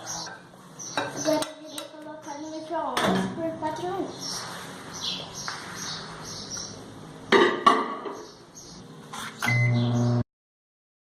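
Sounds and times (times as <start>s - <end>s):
microwave oven humming: 8.9s - 10.3s.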